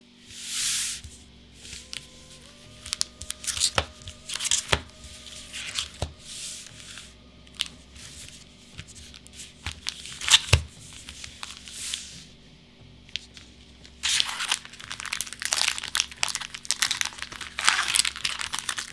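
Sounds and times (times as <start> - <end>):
plastic wrapper tearing and crinkling: 1.6 - 6.8, 13.2 - 18.9.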